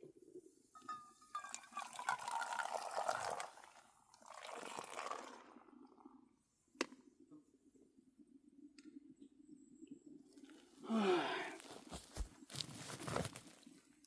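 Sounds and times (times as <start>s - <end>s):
liquid being poured: 1.4s - 6.1s.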